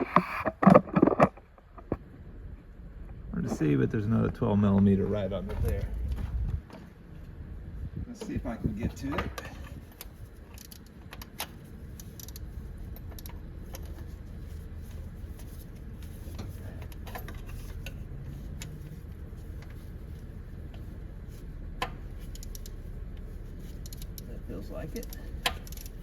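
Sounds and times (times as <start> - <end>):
hand tool clicking on bolt: 25.0 - 26.0.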